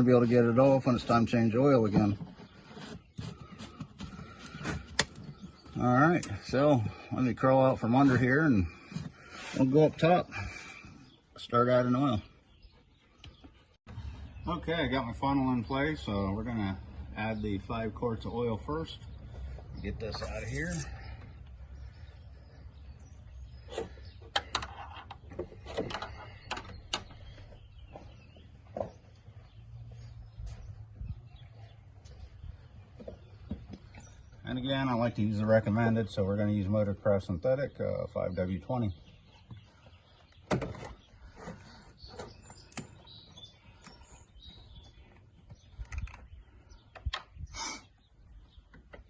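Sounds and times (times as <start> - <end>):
birds chirping faintly: 0.0 - 49.0.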